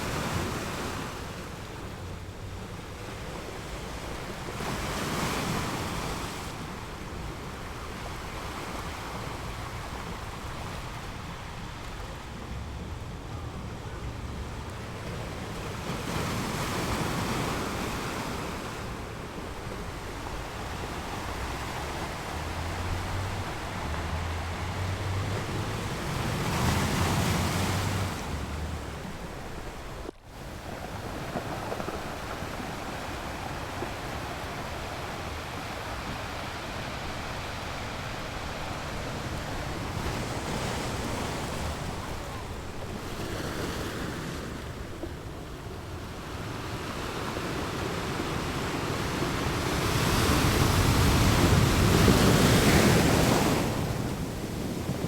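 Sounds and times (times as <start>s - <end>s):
wind buffeting microphone: 0.0s - 55.0s
surf breaking on beach: 3.2s - 55.0s.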